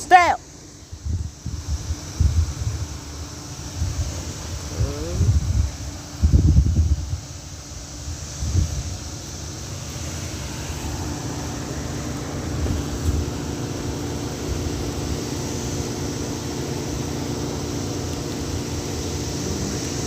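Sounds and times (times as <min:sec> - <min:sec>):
cicada chorus drone: 0:00.0 - 0:20.0
low mechanical hum: 0:00.0 - 0:20.0
wind rumble on microphone: 0:00.9 - 0:09.2.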